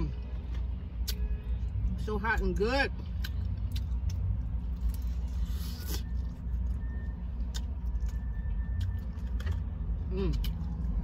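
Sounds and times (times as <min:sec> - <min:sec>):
crispy chicken crunching: 0:03.2 - 0:11.0.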